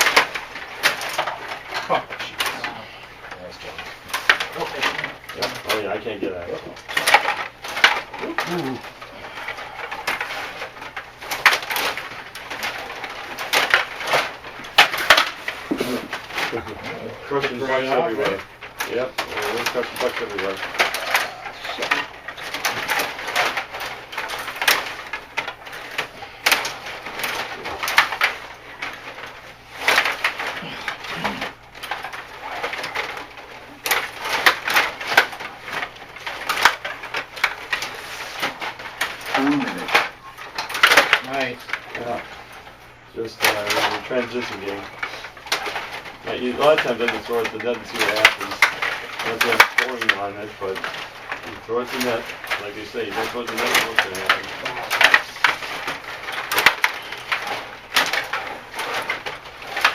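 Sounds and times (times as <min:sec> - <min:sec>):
hockey sticks and puck clacking: 0:14.7 - 0:15.9, 0:48.0 - 0:50.0.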